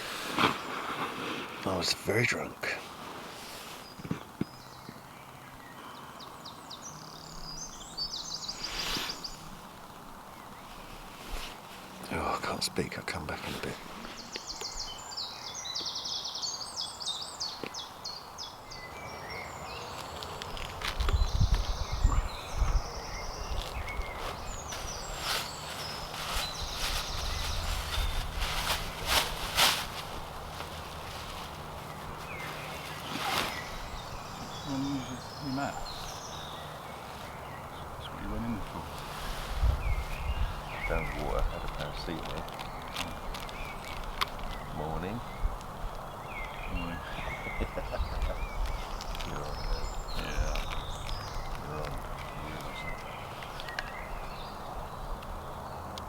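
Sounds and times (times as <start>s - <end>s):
rustling: 0.0s - 5.7s, 7.2s - 15.9s, 16.5s - 56.0s
birds singing: 0.0s - 56.0s
outdoor background hush: 0.0s - 56.0s
songbird chirping: 0.0s - 56.0s
footsteps: 23.5s - 33.9s.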